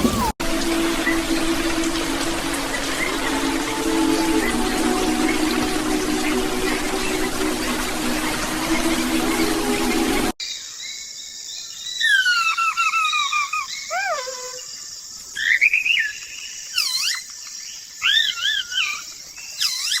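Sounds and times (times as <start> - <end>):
rushing water-like noise: 0.0 - 10.4.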